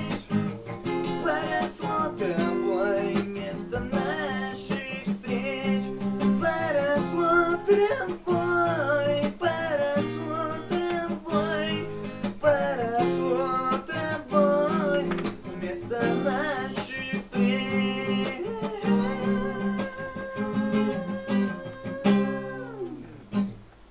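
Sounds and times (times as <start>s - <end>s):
strummed acoustic guitar: 0.0s - 23.9s.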